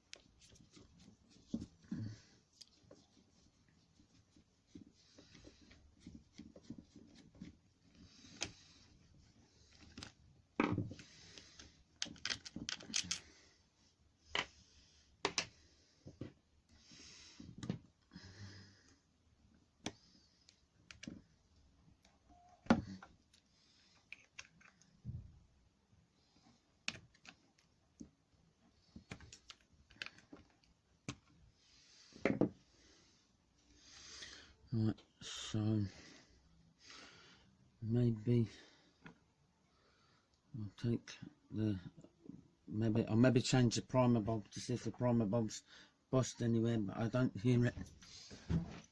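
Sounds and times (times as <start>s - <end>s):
hand tools and parts clicking: 11.0s - 13.3s.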